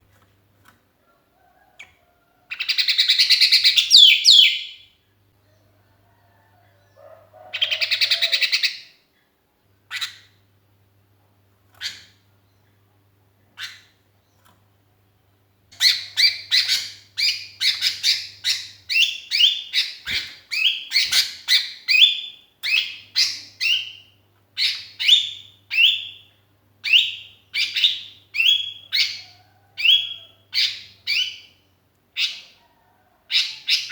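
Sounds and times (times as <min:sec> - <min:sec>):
bulbul calling: 0:02.5 - 0:04.8.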